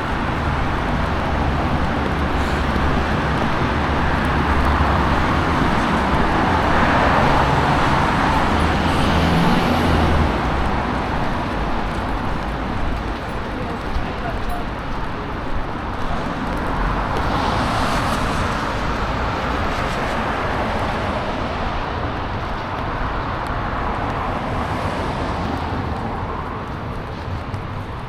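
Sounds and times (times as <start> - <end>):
tyres hissing on wet asphalt: 0.0 - 13.8.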